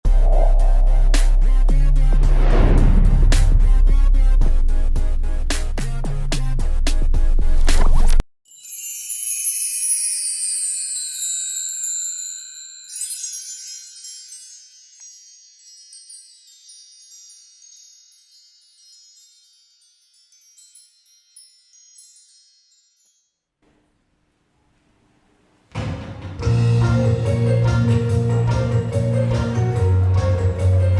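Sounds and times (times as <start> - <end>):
chimes ringing: 8.5 - 23.4.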